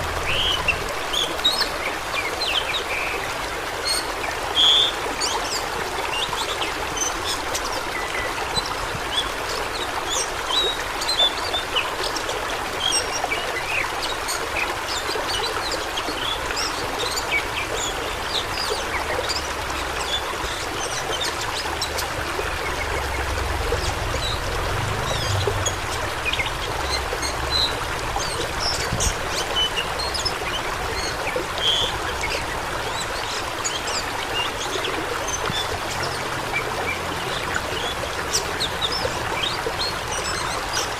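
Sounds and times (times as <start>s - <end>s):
fast-flowing water splashing: 0.0s - 40.9s.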